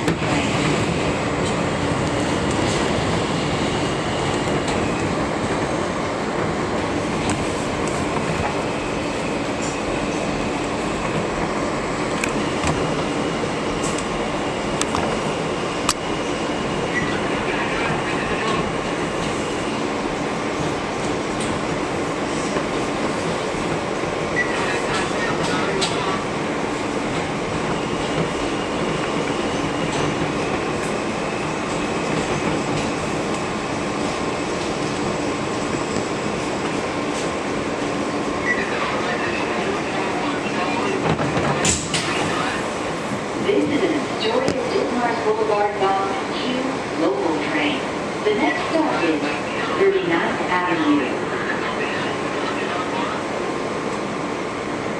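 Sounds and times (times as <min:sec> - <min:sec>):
subway train rumble: 0:00.0 - 0:54.9.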